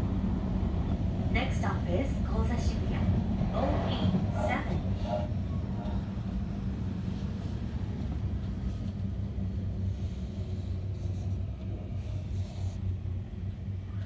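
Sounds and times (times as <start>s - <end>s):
constant low hum: 0.0s - 14.0s
train wheels rumbling on rail: 0.0s - 14.0s.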